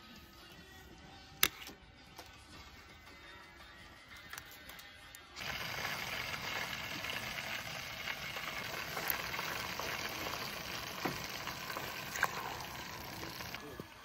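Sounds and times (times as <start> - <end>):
donuts sizzling in oil: 5.4 - 14.0.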